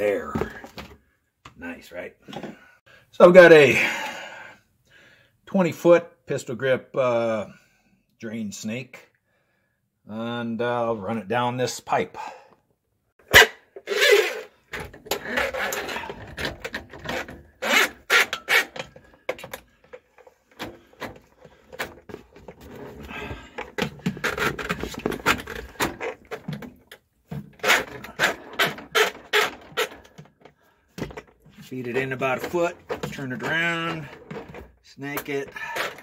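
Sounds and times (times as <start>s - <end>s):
cable scraping in pipe: 13.3s - 26.6s, 27.4s - 30.5s.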